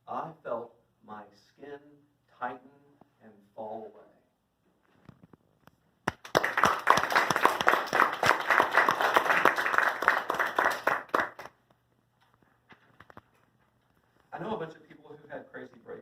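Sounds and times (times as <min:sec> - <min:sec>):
audience clapping: 0:06.0 - 0:11.6.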